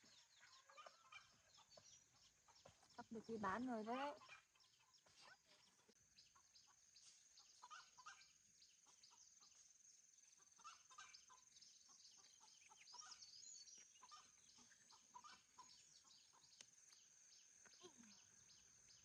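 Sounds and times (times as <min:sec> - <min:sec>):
faint chickens clucking: 0:00.0 - 0:16.7
short chirping calls: 0:03.0 - 0:09.6, 0:10.4 - 0:16.8.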